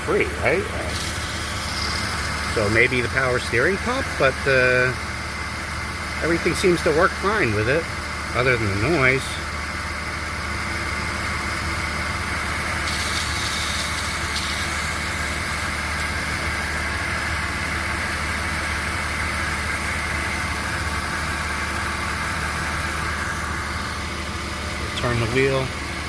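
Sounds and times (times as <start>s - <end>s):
car engine idling: 0.0s - 26.0s
high-pitched belt drive whine: 0.0s - 26.0s.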